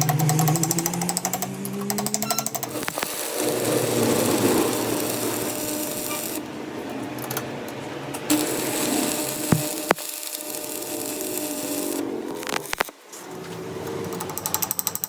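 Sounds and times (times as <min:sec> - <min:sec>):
machine humming: 0:00.0 - 0:14.3.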